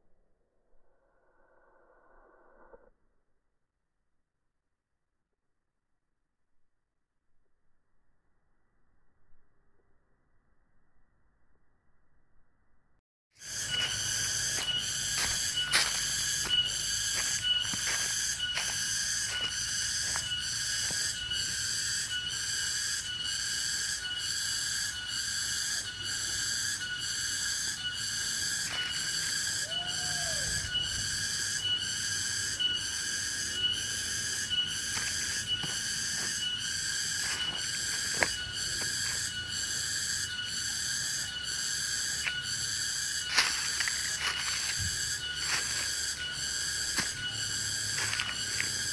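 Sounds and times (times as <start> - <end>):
footsteps on dry leaves: 13.4 - 21.6, 34.8 - 39.3, 43.3 - 48.9
insects chirping in pulses: 13.4 - 48.9
whistle-like drone: 13.4 - 48.9.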